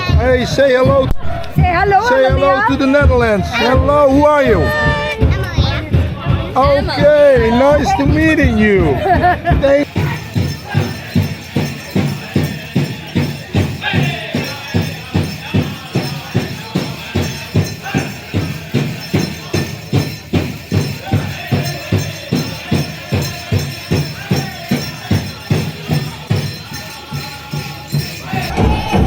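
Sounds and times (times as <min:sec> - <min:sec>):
big drum beating: 0:00.0 - 0:29.0
voices singing: 0:00.0 - 0:29.0.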